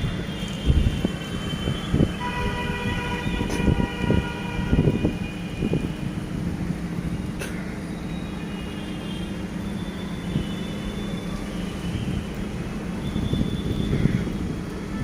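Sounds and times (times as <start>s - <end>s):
large vehicle rumble: 0.0s - 15.0s
multi-tone horn: 0.7s - 5.2s.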